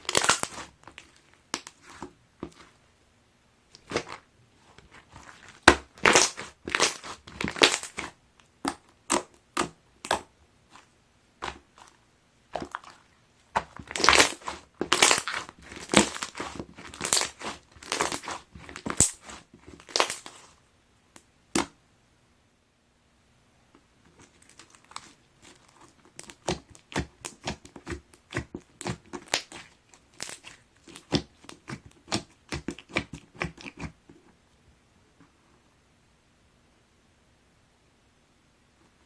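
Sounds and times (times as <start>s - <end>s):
slime squeezed crackling and popping: 0.0s - 2.7s, 4.9s - 10.8s, 12.6s - 20.5s, 24.2s - 33.9s.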